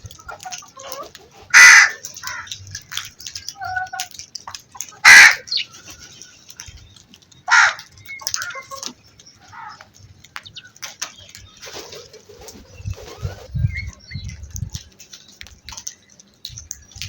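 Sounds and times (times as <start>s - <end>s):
crows cawing: 1.5s - 4.2s, 4.8s - 5.9s, 7.5s - 9.9s.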